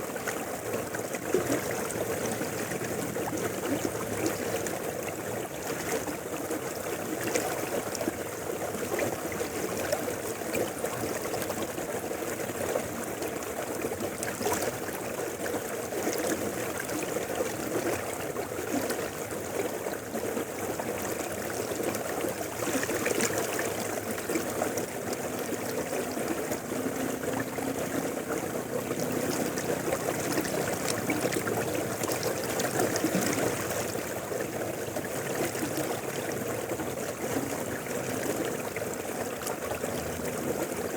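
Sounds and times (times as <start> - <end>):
river rushing over rocks: 21.8 - 40.9.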